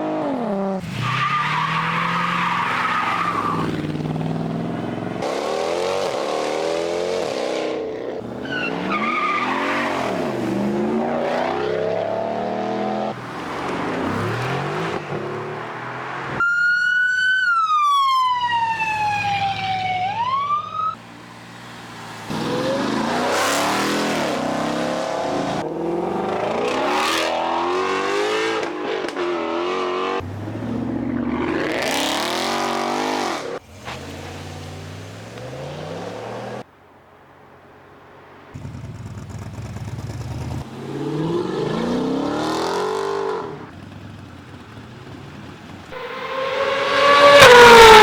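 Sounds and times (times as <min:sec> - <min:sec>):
car engines revving and accelerating: 0:00.0 - 0:16.4, 0:18.3 - 0:36.7, 0:38.6 - 0:48.0
police siren wailing: 0:16.3 - 0:21.0, 0:46.0 - 0:48.0.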